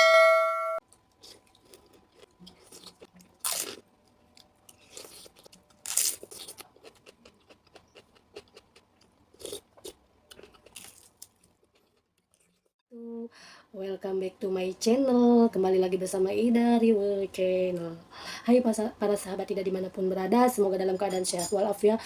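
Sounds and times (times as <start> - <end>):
crunchy chewing: 0.9 - 12.7.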